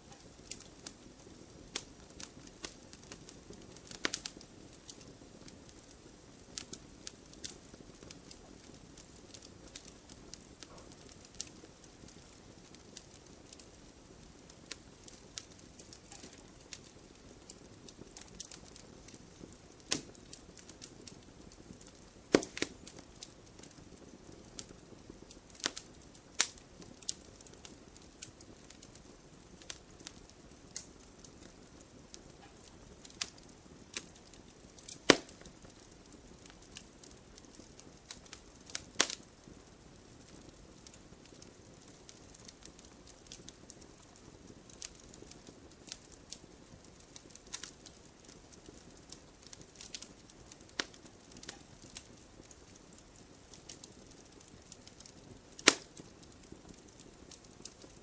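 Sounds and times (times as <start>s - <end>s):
low rush of burning: 0.0s - 58.0s
wood bonfire crackling: 0.0s - 58.0s
sharp pops and snaps: 14.7s - 16.8s, 19.8s - 21.2s, 21.8s - 23.7s, 25.5s - 27.6s, 32.4s - 35.9s, 37.5s - 39.2s, 50.7s - 56.2s.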